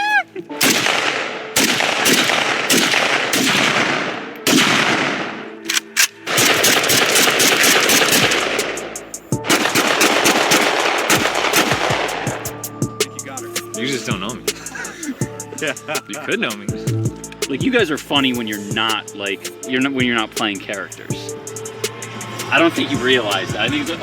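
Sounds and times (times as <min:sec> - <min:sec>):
automatic gunfire: 0:00.6 - 0:08.9, 0:09.5 - 0:12.4
gunshots with echo: 0:00.6 - 0:12.5.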